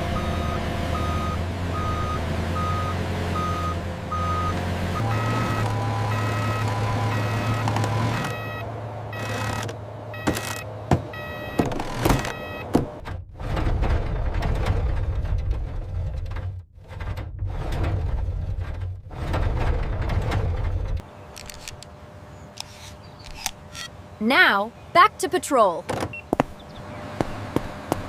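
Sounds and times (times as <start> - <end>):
heavy vehicle engine running: 0.0 - 28.0
reversing alarm beeping: 0.2 - 12.7.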